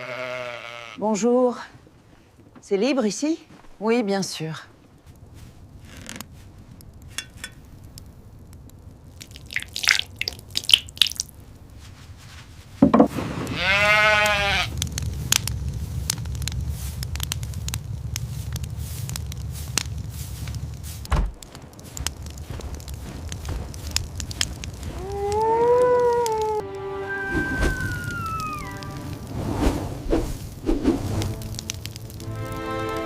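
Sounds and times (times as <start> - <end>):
animal bleat: 0.0 - 1.0, 13.5 - 14.7
low rumble: 14.4 - 33.0.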